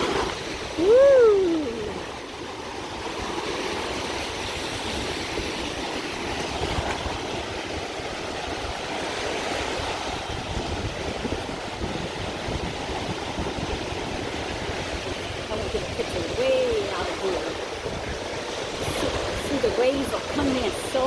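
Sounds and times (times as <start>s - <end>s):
surf washing onto beach: 0.0s - 21.0s
wind buffeting microphone: 0.0s - 21.0s.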